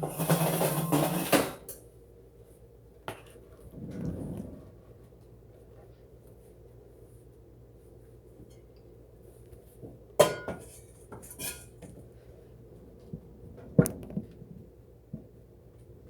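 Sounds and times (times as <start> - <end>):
dishes set down on a counter: 10.2 - 11.9.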